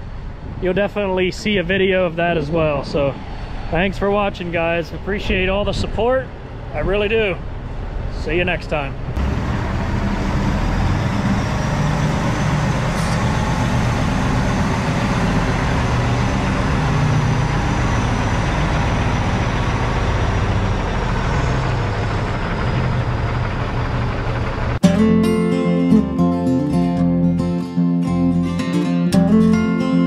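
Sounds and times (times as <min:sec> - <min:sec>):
truck engine running: 0:09.0 - 0:30.0.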